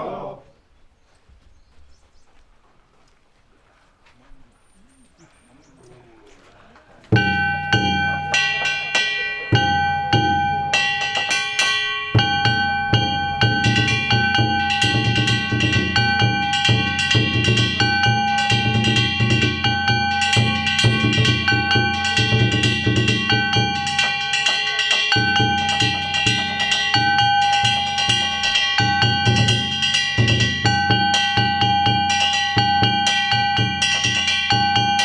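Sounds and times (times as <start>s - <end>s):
small hand gongs ringing: 7.1s - 35.0s
taiko drums in fast rhythm: 7.1s - 35.0s.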